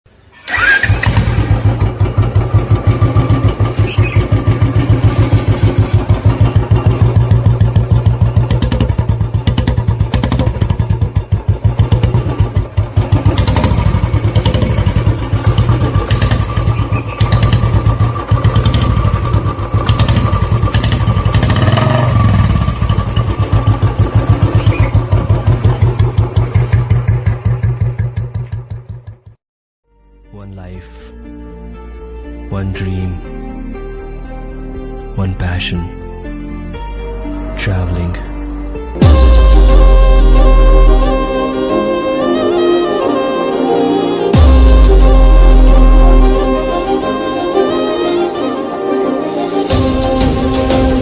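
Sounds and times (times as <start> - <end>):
motorcycle engine idling: 0.4 - 29.4.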